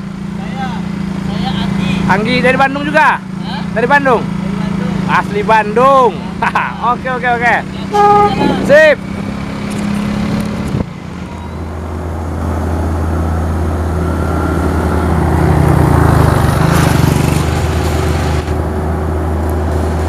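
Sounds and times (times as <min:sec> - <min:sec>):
diesel truck engine humming: 0:00.0 - 0:20.0.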